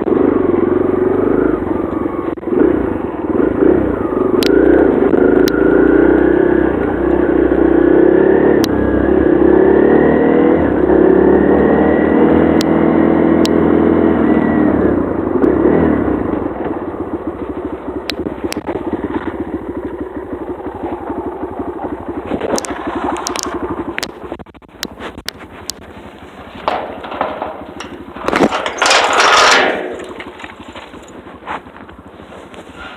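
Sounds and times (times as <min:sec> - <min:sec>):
dirt bike engine revving: 0:00.0 - 0:32.9.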